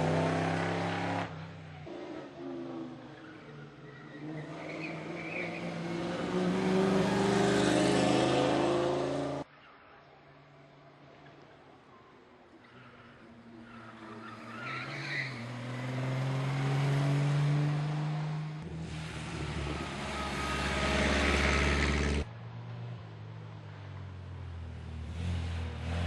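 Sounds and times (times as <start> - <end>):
racing car engine accelerating: 0.0 - 1.3, 4.2 - 9.4, 15.3 - 22.3.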